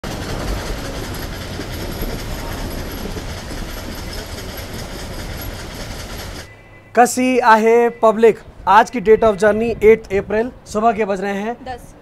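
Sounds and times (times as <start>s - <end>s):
coach rattle: 0.0s - 6.5s
train wheels on rail: 0.0s - 6.6s.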